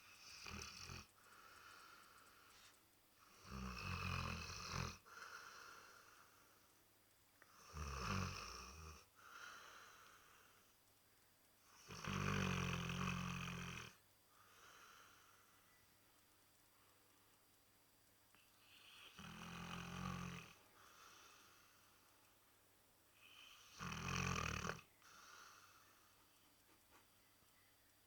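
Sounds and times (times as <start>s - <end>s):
dog snoring: 0.0s - 1.1s, 3.2s - 6.1s, 7.5s - 9.1s, 11.7s - 14.0s, 18.7s - 21.7s, 23.2s - 25.8s.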